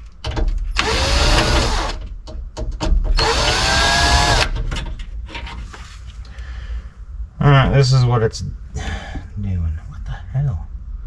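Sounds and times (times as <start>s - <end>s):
cordless power drill motor: 0.8s - 2.0s, 3.2s - 4.6s.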